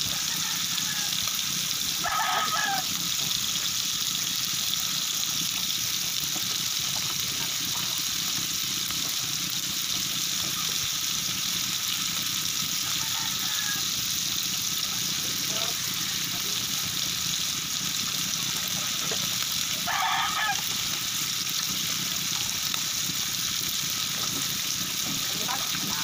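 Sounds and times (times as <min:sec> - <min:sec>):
rooster crowing: 0:00.0 - 0:03.0, 0:12.7 - 0:14.2, 0:15.5 - 0:16.7, 0:19.7 - 0:20.9
food sizzling in a wok: 0:00.0 - 0:26.0.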